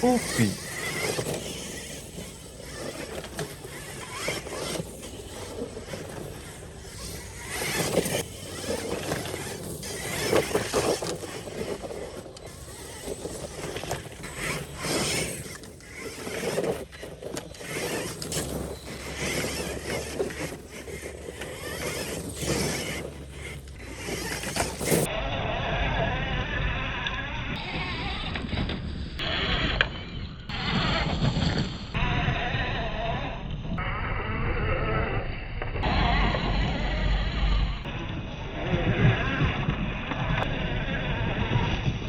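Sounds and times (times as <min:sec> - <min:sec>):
tyres scrabbling on dirt: 0:00.0 - 0:25.1, 0:27.6 - 0:32.8
rc car drivetrain whirring: 0:00.0 - 0:42.0.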